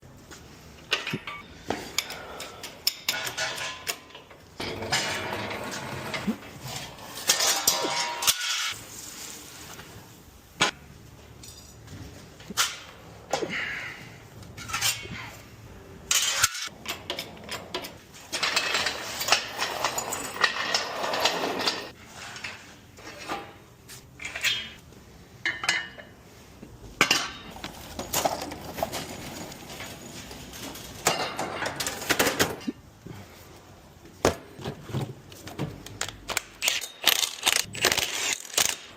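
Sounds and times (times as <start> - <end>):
metal tools clinking: 0.9 - 5.3, 6.7 - 8.8, 11.3 - 11.9, 16.1 - 23.4, 27.0 - 32.7, 36.0 - 38.9
scraping and rattling: 3.1 - 9.0, 16.1 - 23.6, 27.5 - 32.6.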